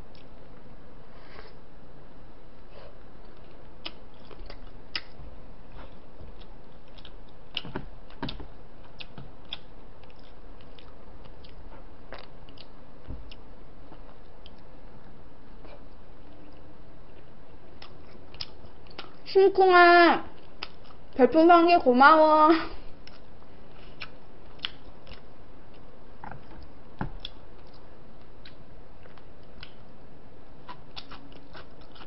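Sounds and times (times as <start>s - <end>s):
steady background hiss: 0.0s - 32.0s
person chewing: 2.8s - 14.8s, 15.6s - 19.2s, 20.4s - 21.2s, 23.0s - 30.0s, 30.6s - 32.0s.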